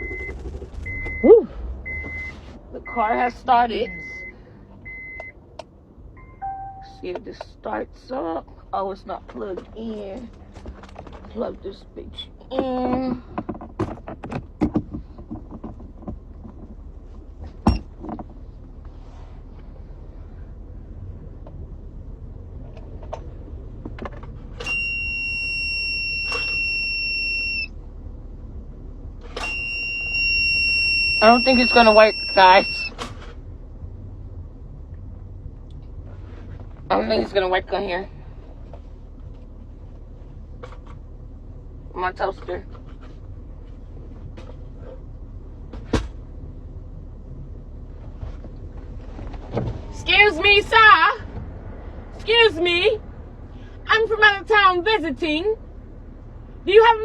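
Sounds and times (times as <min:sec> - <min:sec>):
low car engine hum: 0:00.0 - 0:57.0
steady low rumble: 0:00.0 - 0:57.0
high-pitched alarm beep: 0:03.8 - 0:05.3, 0:06.2 - 0:07.0, 0:29.4 - 0:33.0.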